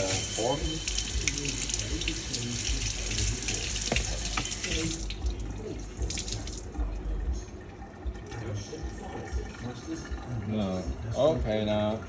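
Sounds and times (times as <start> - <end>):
tap water running into sink: 0.0 - 9.4.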